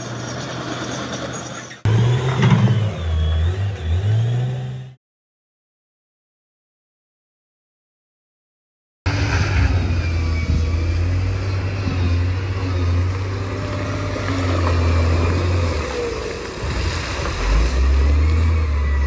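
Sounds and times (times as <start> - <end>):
bulldozer diesel engine droning: 0.0 - 5.0, 9.1 - 19.0.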